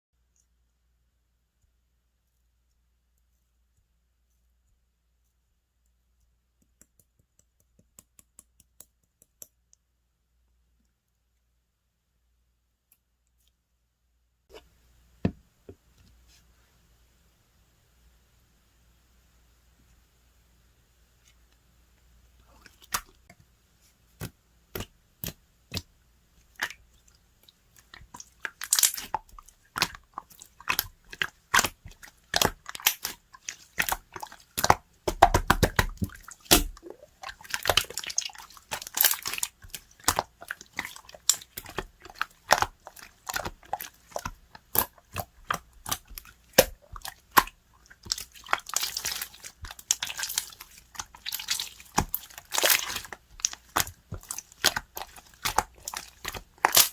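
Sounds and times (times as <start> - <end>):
slime clicking and popping: 34.6 - 56.9.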